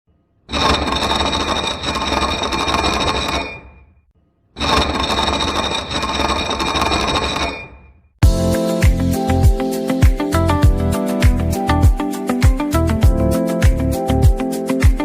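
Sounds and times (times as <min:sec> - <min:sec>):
machine tool cutting metal: 0:00.5 - 0:03.8, 0:04.6 - 0:07.9.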